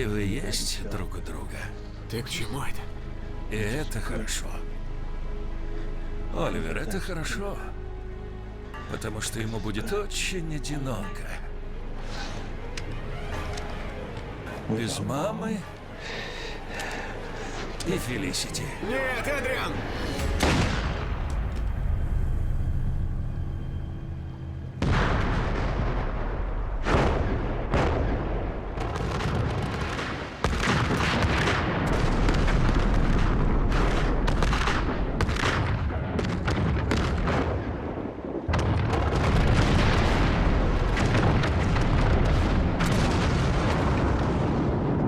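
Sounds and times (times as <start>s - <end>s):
sharp explosion blasts: 20.2s - 22.1s, 24.8s - 45.0s
deep explosion rumble: 20.2s - 45.0s.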